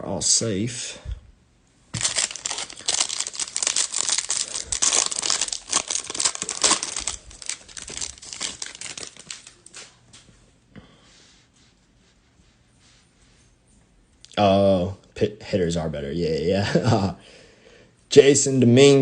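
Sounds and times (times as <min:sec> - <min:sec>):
thin plastic crinkling: 0:01.9 - 0:10.2.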